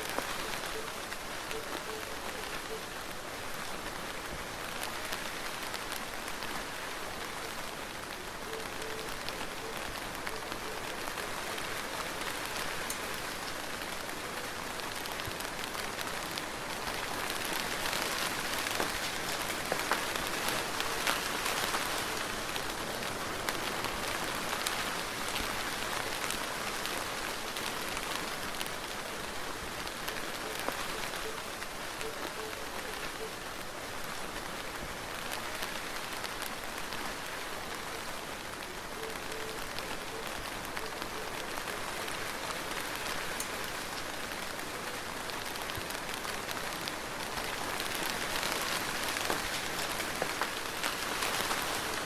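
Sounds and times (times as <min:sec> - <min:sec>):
soft steady rain: 0:00.0 - 0:52.0.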